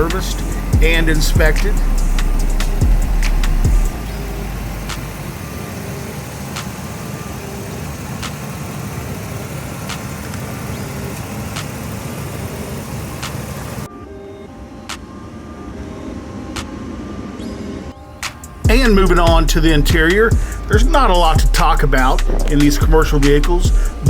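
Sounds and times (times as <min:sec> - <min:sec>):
truck engine idling: 0:00.0 - 0:13.9, 0:15.6 - 0:24.0.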